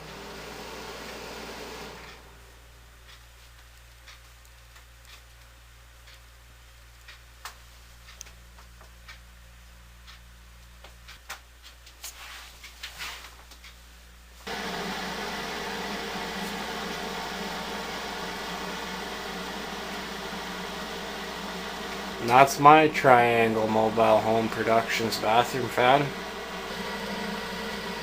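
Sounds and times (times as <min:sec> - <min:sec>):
exhaust fan rushing air: 0:00.0 - 0:03.4, 0:14.4 - 0:28.0
faint clicks and taps: 0:03.0 - 0:09.2, 0:10.0 - 0:13.8
low hum: 0:14.1 - 0:28.0.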